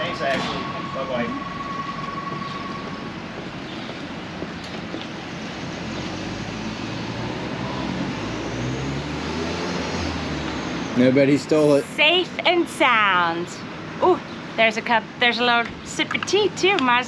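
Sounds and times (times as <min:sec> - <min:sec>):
steady rushing noise: 0:00.0 - 0:07.6
vehicle engine hum: 0:00.0 - 0:17.0.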